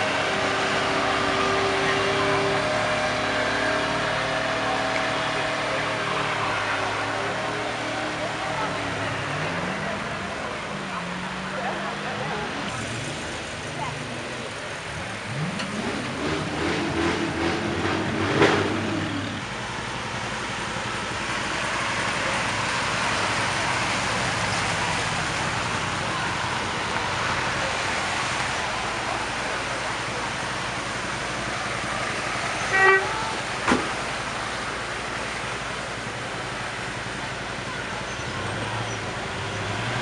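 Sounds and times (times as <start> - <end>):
car engine revving: 0.0 - 40.0
cars idling: 0.0 - 40.0
crowd noise: 0.0 - 40.0
short car horn toots: 32.7 - 33.2.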